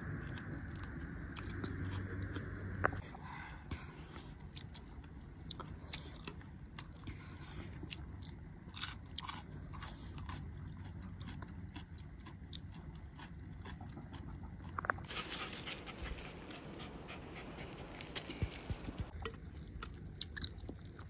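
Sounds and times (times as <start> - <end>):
person chewing food: 0.0 - 3.1, 3.7 - 21.0
crisp crunches: 15.1 - 19.1.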